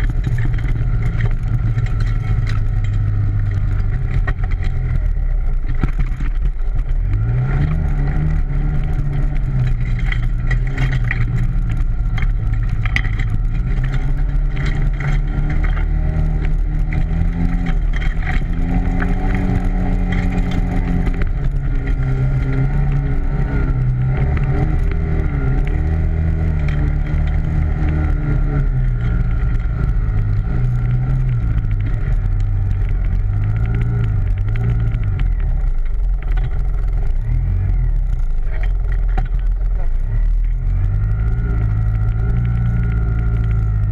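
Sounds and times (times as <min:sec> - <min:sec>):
atv engine revving: 0:00.0 - 0:43.9.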